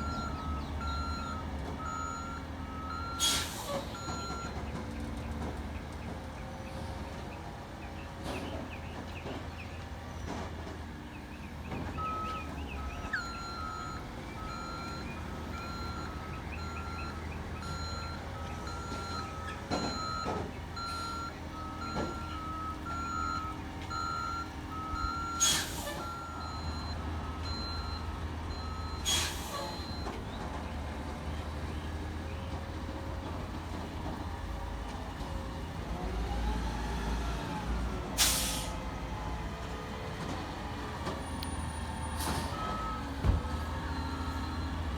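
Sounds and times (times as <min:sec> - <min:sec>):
backup alarm beeping: 0:00.0 - 0:03.3, 0:03.9 - 0:04.6, 0:11.8 - 0:30.1, 0:42.4 - 0:44.8
garbage truck running: 0:00.0 - 0:44.9
air brake hisses: 0:03.2 - 0:03.9, 0:25.4 - 0:26.0, 0:29.0 - 0:29.8, 0:38.2 - 0:38.8.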